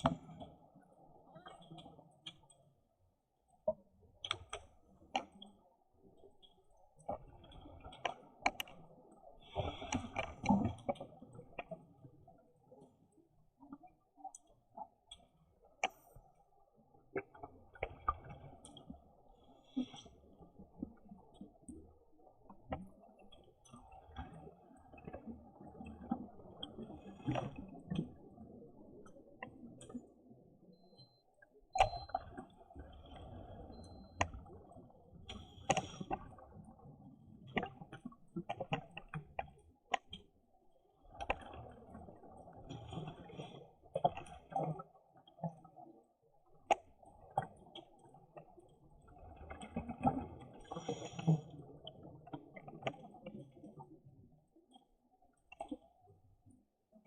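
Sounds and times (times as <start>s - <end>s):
sharp clicks and crackles: 4.2s - 5.6s, 6.4s - 8.9s, 37.4s - 40.3s.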